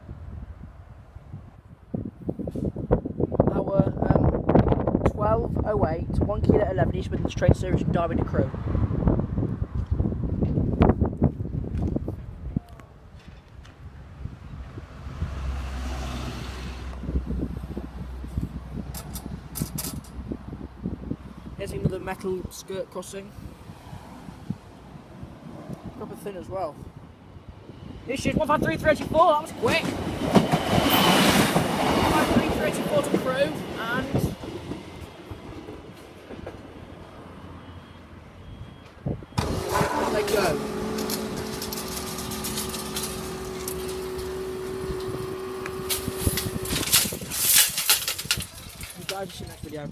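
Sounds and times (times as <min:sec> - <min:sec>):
wind buffeting microphone: 0:00.0 - 0:36.6, 0:38.5 - 0:49.9
train passing: 0:13.8 - 0:38.4.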